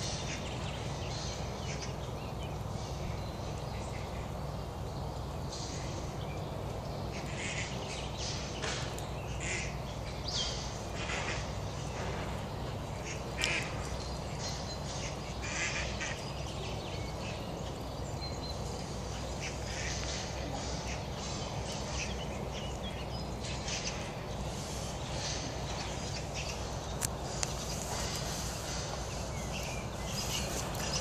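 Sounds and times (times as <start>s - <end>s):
steady low rumble: 0.0s - 31.0s
quack-like bird calls: 9.3s - 9.8s, 13.0s - 13.9s, 15.0s - 16.2s.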